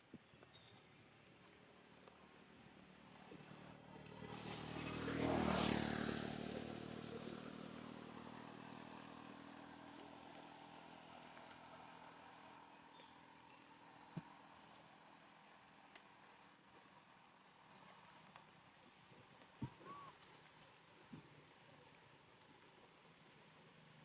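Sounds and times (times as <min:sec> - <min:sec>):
vehicle engine passing by: 0:03.0 - 0:14.4.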